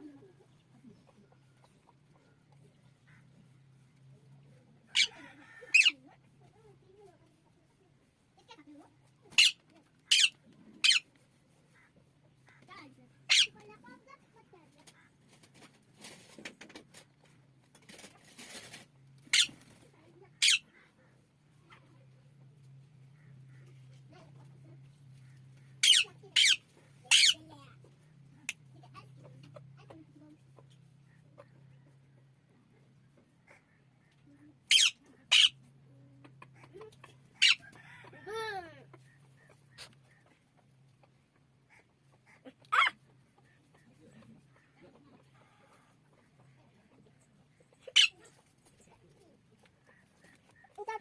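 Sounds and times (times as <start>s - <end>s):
parrot squawking: 4.9s - 6.0s, 9.3s - 11.0s, 13.3s - 13.6s, 19.3s - 19.6s, 20.4s - 20.7s, 25.8s - 27.5s, 34.6s - 35.7s, 36.4s - 38.0s, 41.7s - 43.0s, 47.8s - 48.3s.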